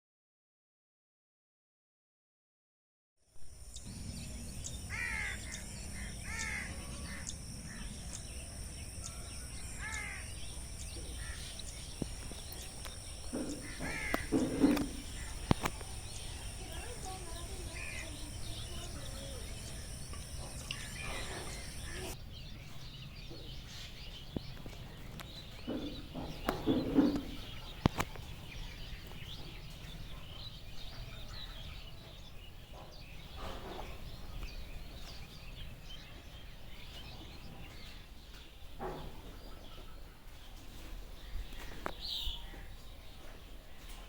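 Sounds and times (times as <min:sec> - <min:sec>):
birds chirping and calling: 0:03.6 - 0:44.0.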